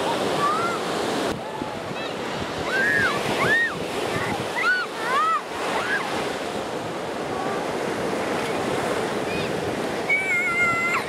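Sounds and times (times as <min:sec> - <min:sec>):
surf breaking on sand: 0:00.0 - 0:11.0
held high cry: 0:10.1 - 0:11.0.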